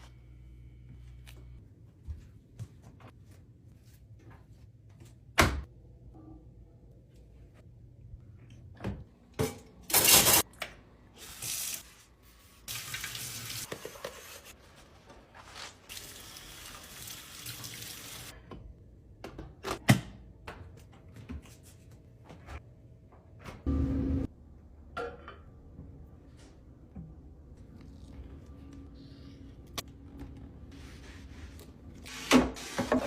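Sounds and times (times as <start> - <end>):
water running from a tap: 12.7 - 13.7, 15.9 - 18.3.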